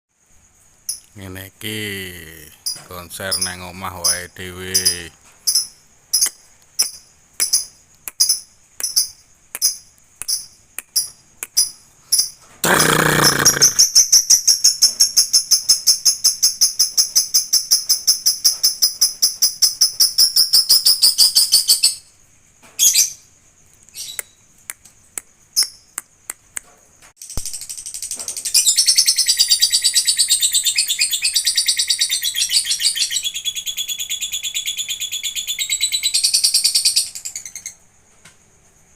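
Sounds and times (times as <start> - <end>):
lovebird chirping and trilling: 23.9 - 24.4.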